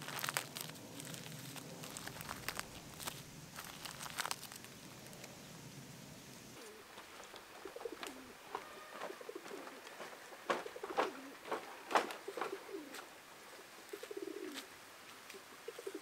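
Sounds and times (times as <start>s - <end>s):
light crackles and clicks: 0.0s - 5.4s
bird cooing: 6.6s - 14.7s, 15.3s - 16.0s.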